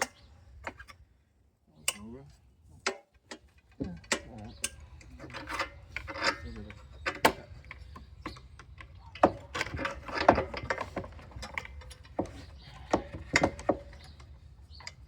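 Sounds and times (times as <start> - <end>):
wooden clamp clicking and knocking: 2.8 - 15.0.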